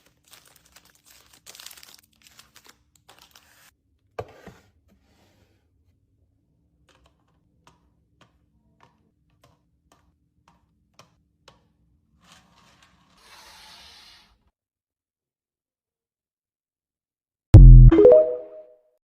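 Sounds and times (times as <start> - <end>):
hiss: 13.3 - 14.3.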